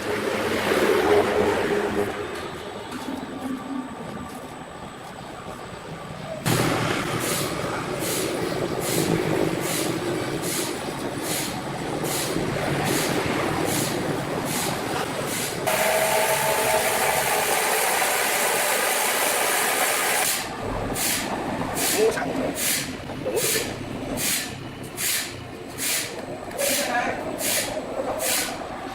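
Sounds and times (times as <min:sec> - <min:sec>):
sawmill machinery din: 0:06.4 - 0:28.9
dense hiss: 0:06.5 - 0:16.0, 0:20.0 - 0:28.8.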